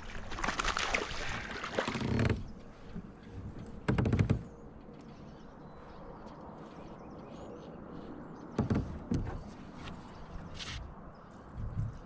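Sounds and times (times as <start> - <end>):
rustling and knocking on kayak: 0.3 - 5.4, 8.0 - 12.0.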